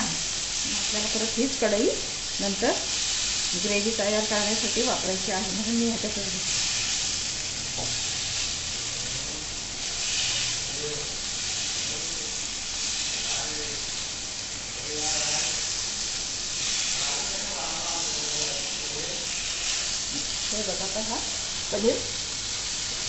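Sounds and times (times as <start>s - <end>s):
paneer sizzling in hot oil: 0.0s - 23.0s.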